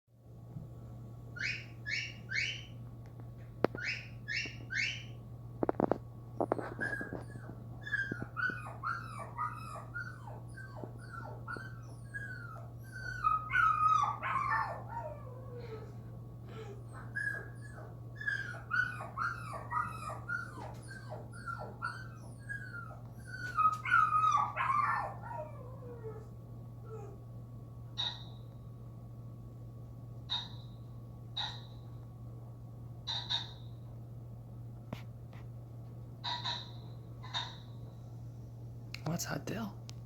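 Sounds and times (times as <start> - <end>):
dog whimpering and yipping: 1.4 - 2.7, 3.7 - 5.2, 6.4 - 15.9, 16.5 - 27.2, 28.0 - 28.3, 36.2 - 37.7.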